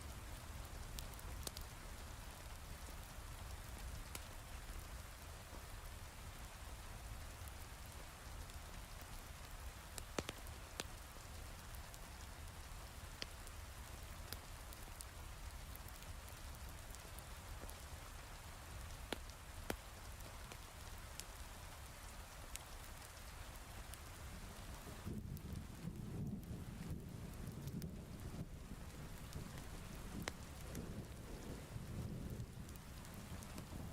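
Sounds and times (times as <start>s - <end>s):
wood fire crackling: 0.0s - 33.9s
heavy rain falling: 22.6s - 33.9s.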